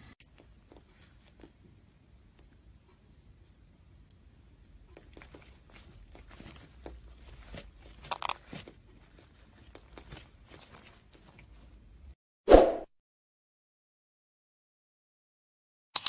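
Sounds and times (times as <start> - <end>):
faint crinkling and rustling: 0.2 - 2.6, 4.7 - 12.1.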